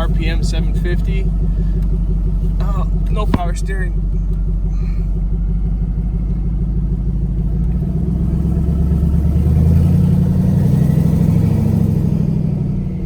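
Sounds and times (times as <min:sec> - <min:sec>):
engine revving: 0:07.6 - 0:13.0.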